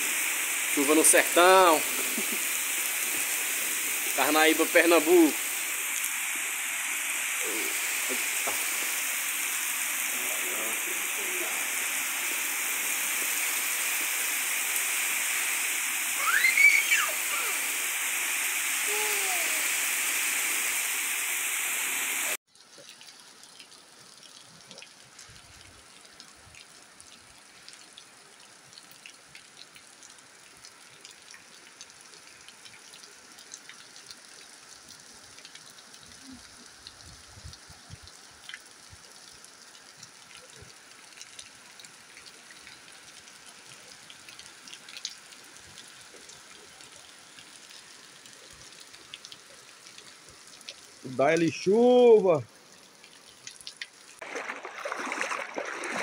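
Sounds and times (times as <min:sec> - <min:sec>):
heavy rain pouring: 0:00.0 - 0:22.4, 0:42.5 - 0:56.0
rain drips and patters: 0:00.0 - 0:56.0
short high call: 0:16.2 - 0:17.6.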